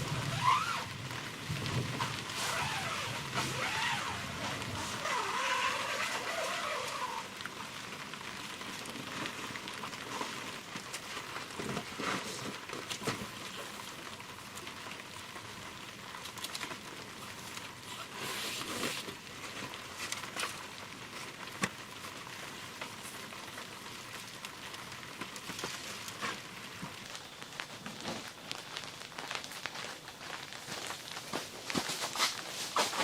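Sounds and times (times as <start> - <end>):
sharp raindrop impacts: 0.0 - 33.0
steady rain falling: 0.0 - 33.0.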